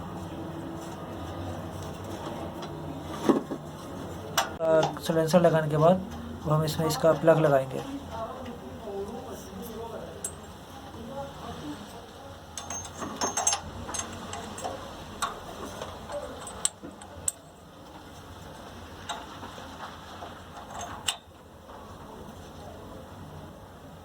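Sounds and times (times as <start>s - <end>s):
hand tools clicking on metal: 12.6s - 17.5s.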